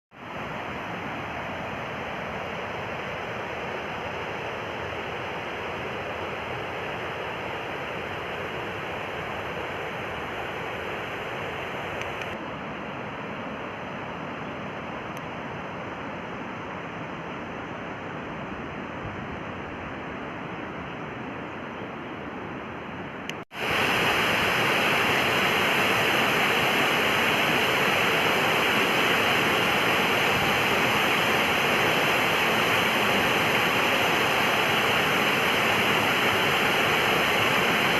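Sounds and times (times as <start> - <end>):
waterfall rushing: 23.5 - 37.9.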